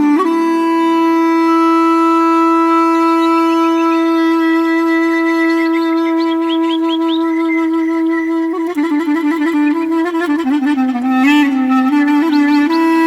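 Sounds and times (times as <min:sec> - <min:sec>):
clarinet holding long note: 0:00.0 - 0:13.0
birds chirping: 0:02.8 - 0:04.4, 0:05.1 - 0:12.7.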